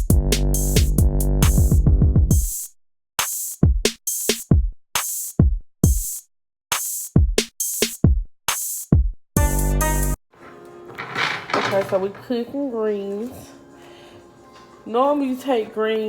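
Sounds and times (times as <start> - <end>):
electronic music with drum machine: 0.0 - 10.2.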